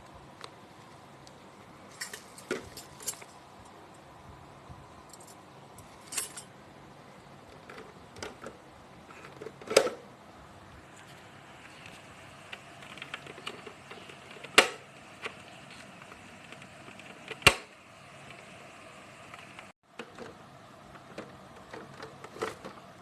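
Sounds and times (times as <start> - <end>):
mixer parts clicking and clinking: 19.9 - 22.9.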